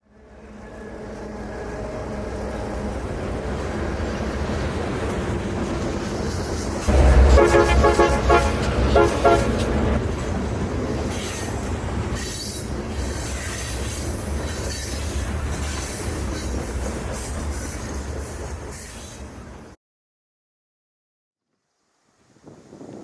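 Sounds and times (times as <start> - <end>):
diesel locomotive engine rumble: 0.1 - 19.8
locomotive horn blasts: 6.9 - 10.0.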